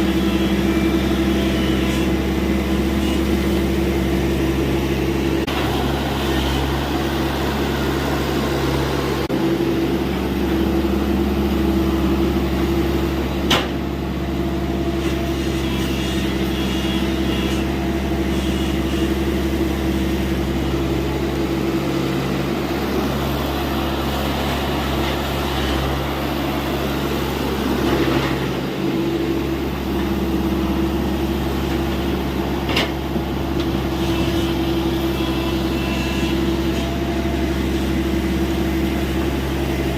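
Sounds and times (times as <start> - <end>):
excavator diesel engine digging: 0.0 - 39.9.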